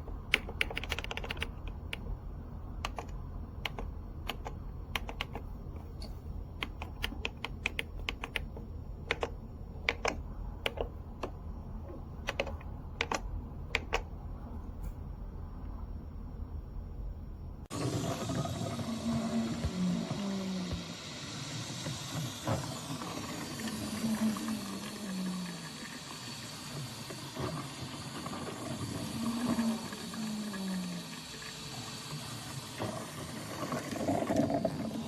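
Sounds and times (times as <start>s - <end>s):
coffee maker hissing: 17.7s - 35.0s.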